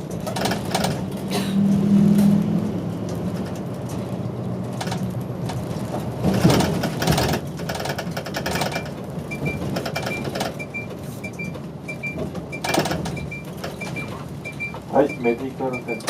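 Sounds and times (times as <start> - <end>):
bus running and rattling: 0.0 - 16.0
short electronic beeps: 8.7 - 16.0.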